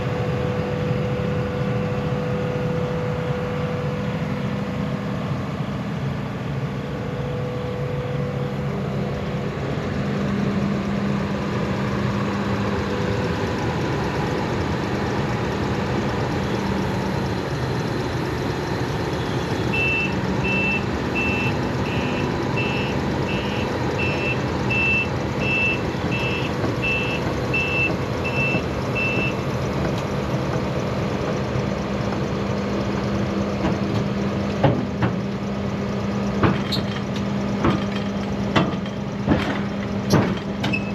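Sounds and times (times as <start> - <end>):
excavator diesel engine running: 0.0 - 40.9
travel alarm beeping: 19.6 - 29.4.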